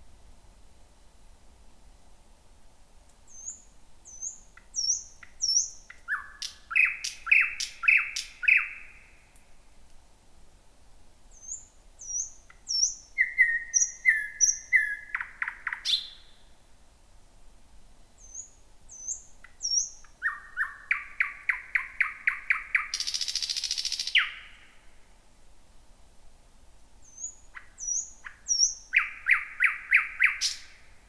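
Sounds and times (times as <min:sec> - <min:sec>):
thrush nightingale singing: 0:03.3 - 0:09.4, 0:11.3 - 0:16.6, 0:18.2 - 0:25.0, 0:27.0 - 0:31.0.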